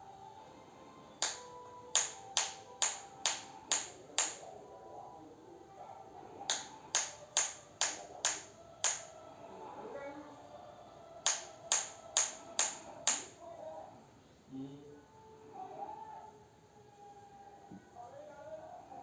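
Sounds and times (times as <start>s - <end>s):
sharp snaps: 1.2s - 4.6s, 6.4s - 9.2s, 11.2s - 13.4s.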